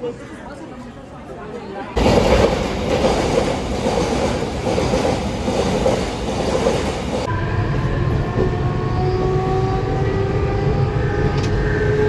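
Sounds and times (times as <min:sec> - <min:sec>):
train rumbling: 0:02.0 - 0:12.0.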